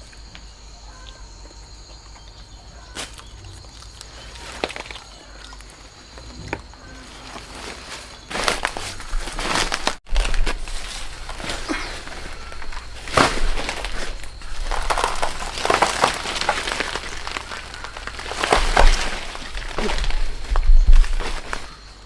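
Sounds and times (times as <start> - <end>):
crunching and rustling: 1.6 - 22.0.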